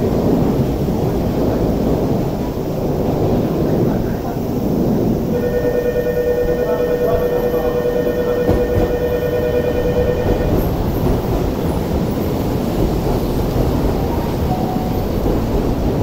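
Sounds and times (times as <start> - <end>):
electric train rumbling past: 0.0 - 16.0
steady whine: 5.3 - 10.9.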